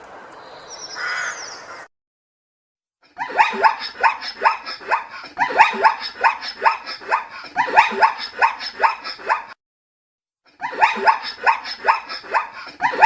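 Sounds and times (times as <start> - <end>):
animal barking calls: 3.2 - 9.6, 10.6 - 13.0.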